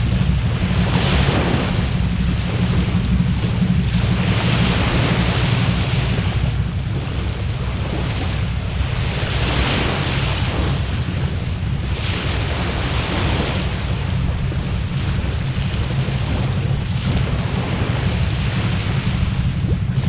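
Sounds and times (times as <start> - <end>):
high-pitched whine: 0.0 - 20.0
wind rumbling on microphone: 0.0 - 20.0.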